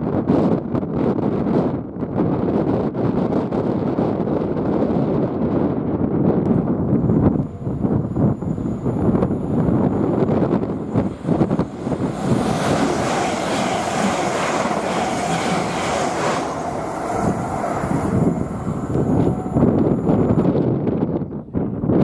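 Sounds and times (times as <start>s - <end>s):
train passing at speed: 6.5s - 21.1s.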